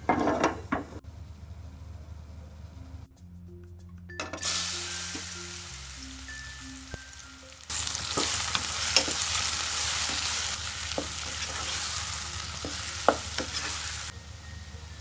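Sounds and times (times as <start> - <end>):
food sizzling in a pan: 4.4 - 15.0
spatula tapping a pan: 8.0 - 14.0.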